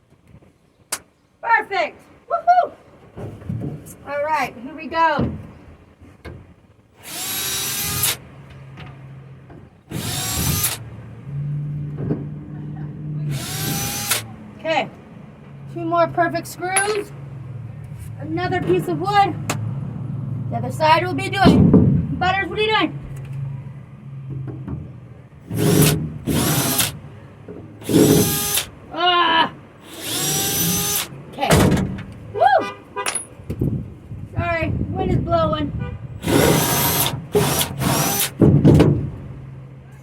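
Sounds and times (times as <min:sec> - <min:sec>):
power drill motor whine: 0:07.0 - 0:08.2, 0:09.9 - 0:10.8, 0:13.3 - 0:14.3, 0:25.5 - 0:27.0, 0:27.8 - 0:28.7, 0:29.8 - 0:31.1, 0:36.2 - 0:38.4.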